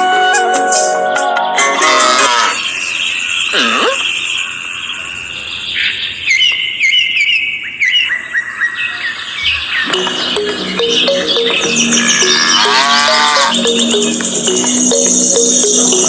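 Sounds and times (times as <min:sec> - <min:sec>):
small birds chirping: 0:01.6 - 0:16.0
high-pitched hum: 0:09.9 - 0:16.0.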